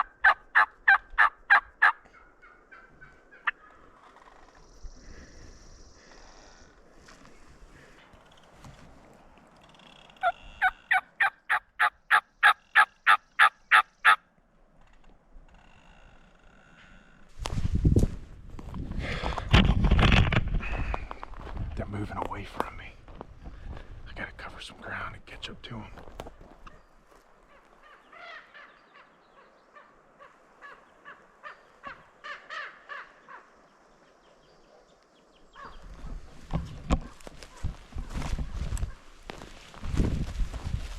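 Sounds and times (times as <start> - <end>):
turkey call yelps: 0.0 - 3.8, 10.2 - 14.2, 29.8 - 33.5.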